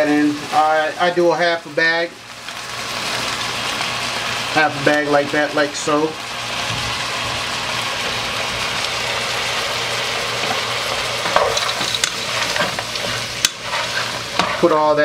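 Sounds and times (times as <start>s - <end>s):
vegetables sizzling in a pot: 0.0s - 15.0s
utensil scraping a pot: 10.5s - 14.8s.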